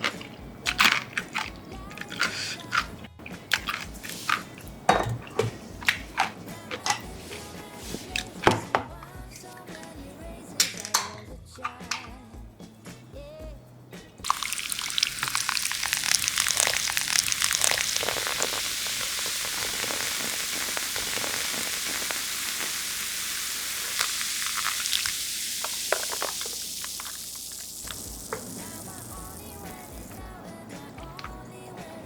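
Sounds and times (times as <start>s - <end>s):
chicken deep-frying in hot oil: 14.2s - 30.4s.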